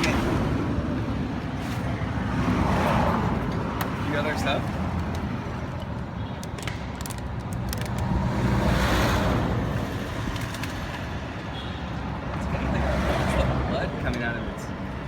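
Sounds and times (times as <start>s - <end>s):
traffic rumble: 0.0s - 15.0s
vehicle passing by: 8.0s - 10.2s.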